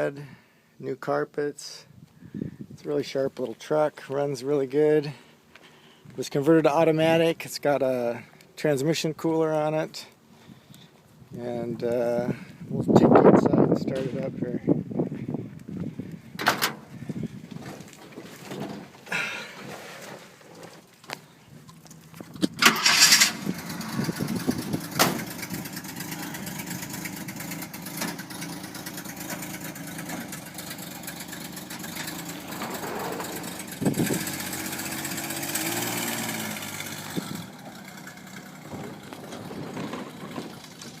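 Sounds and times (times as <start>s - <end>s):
engine cranking and starting: 22.4s - 41.0s
engine running and revving: 22.6s - 41.0s.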